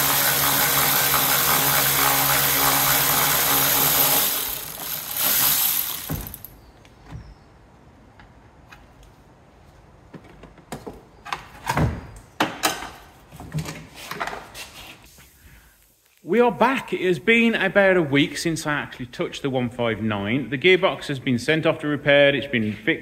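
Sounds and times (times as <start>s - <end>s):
power tool running: 0.0s - 6.5s
hand tools clicking and knocking: 0.0s - 6.6s.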